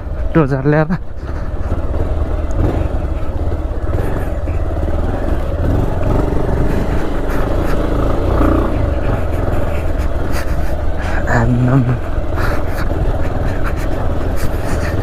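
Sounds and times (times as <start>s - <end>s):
motorcycle riding on gravel: 0.0s - 15.0s.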